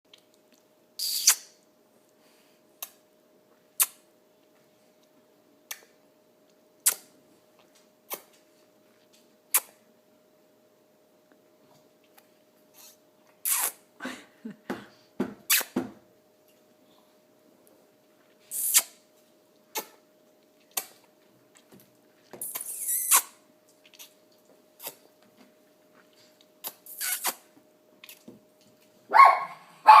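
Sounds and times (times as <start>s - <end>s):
smacking kisses: 0.1s - 1.6s, 2.8s - 3.0s, 3.8s - 4.0s, 5.7s - 5.9s, 6.8s - 7.1s, 7.7s - 8.4s, 9.5s - 9.8s, 12.0s - 13.8s, 15.5s - 15.8s, 18.5s - 19.0s, 19.7s - 20.0s, 20.6s - 21.1s, 22.3s - 24.2s, 24.8s - 25.1s, 26.6s - 28.3s.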